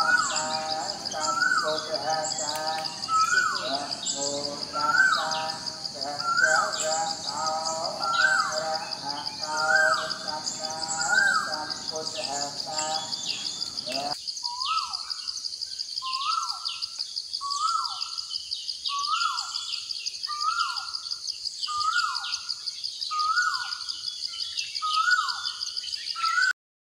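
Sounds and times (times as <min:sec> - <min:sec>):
steady high-pitched drone: 0:00.0 - 0:14.2
faint bird chirps: 0:00.0 - 0:26.5.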